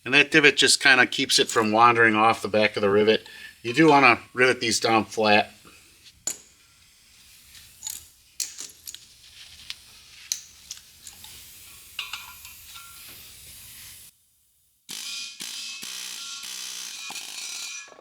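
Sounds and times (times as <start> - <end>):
light metallic clinks and taps: 12.0 - 13.0.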